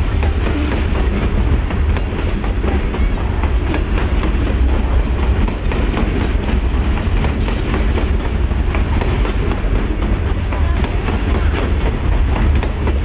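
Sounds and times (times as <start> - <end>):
freight train rumbling past: 0.0 - 13.0
wheels clicking over rail joints: 0.0 - 13.0.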